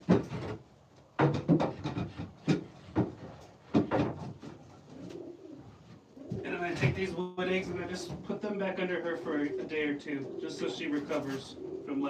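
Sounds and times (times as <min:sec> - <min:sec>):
wooden knocks and bumps: 0:00.0 - 0:04.7, 0:06.3 - 0:08.4.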